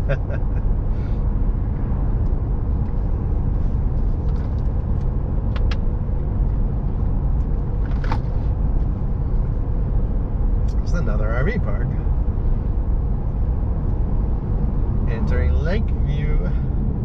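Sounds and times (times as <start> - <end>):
vehicle road and engine rumble: 0.0 - 17.0.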